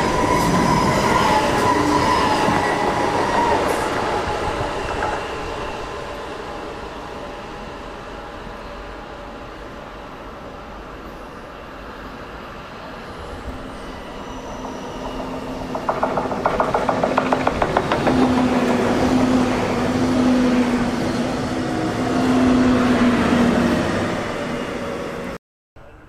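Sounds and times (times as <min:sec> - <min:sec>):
train rumbling past: 0:00.0 - 0:25.4
wheels clicking over rail joints: 0:14.6 - 0:19.4.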